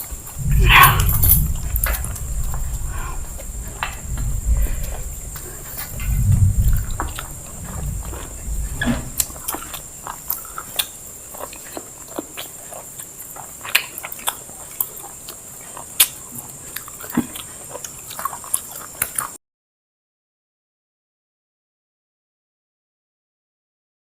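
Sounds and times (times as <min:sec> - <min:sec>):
low rumble: 0:00.0 - 0:10.6
people chewing food: 0:00.0 - 0:19.4.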